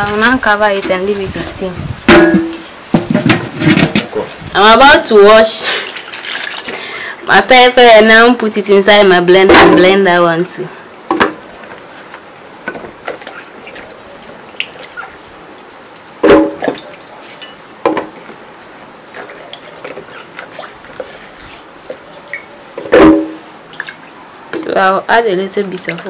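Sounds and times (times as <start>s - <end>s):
water splashing in a bowl: 5.7s - 7.2s, 12.9s - 24.2s.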